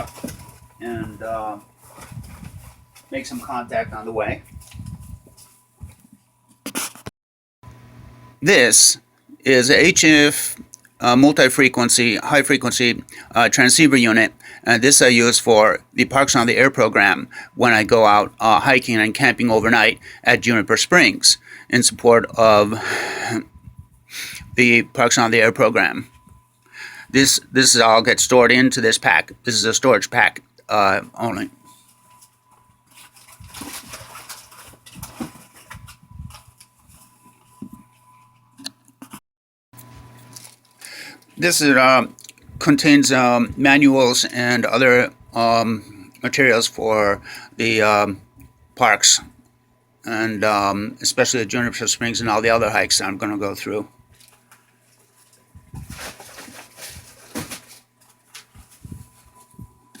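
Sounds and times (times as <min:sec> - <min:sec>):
pack rustling: 0:00.0 - 0:03.6, 0:31.9 - 0:37.5, 0:40.2 - 0:41.2, 0:54.2 - 0:59.4.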